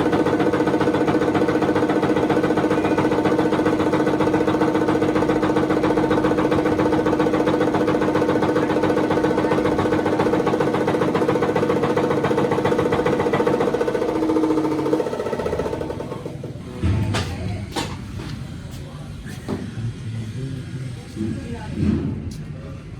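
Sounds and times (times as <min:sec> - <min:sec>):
tractor engine idling: 0:00.0 - 0:16.8.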